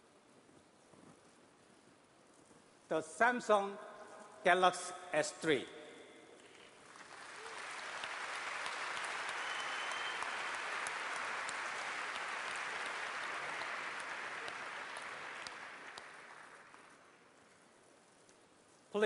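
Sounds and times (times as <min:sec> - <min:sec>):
audience applauding: 0:06.8 - 0:17.1.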